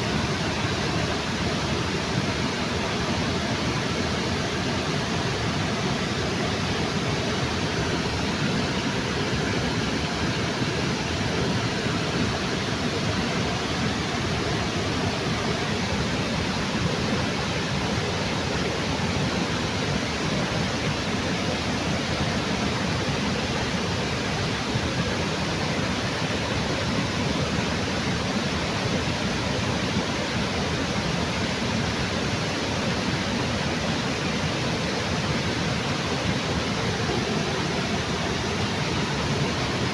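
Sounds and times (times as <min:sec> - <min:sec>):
waterfall rushing: 0:29.2 - 0:39.9.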